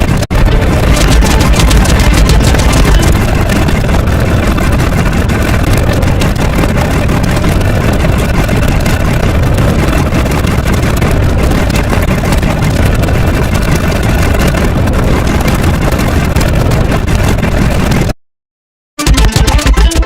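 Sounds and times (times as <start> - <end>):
engine-like low rumble: 0.0 - 18.2.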